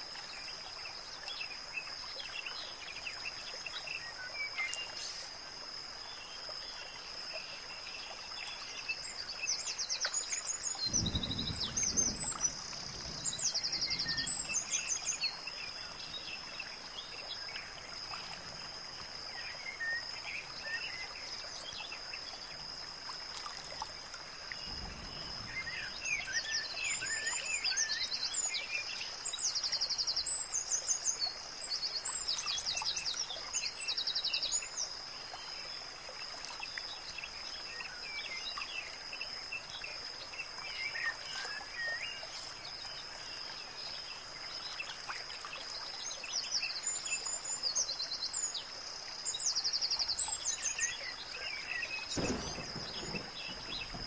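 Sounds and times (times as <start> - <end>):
steady hiss: 0.0 - 54.0
birds chirping and trilling: 8.0 - 17.8, 49.3 - 54.0.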